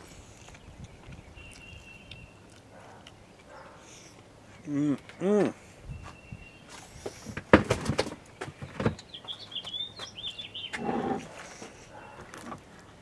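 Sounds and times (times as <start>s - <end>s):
songbird chirping: 0.0s - 7.2s, 8.1s - 12.6s
low voice-like sound: 4.6s - 5.6s
sharp knocks and clatters: 7.3s - 9.0s.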